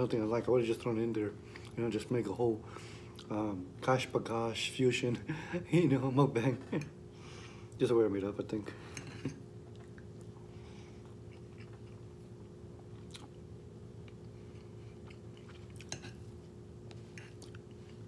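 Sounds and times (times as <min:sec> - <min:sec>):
steady low hum: 0:00.0 - 0:18.0
person chewing: 0:09.6 - 0:18.0.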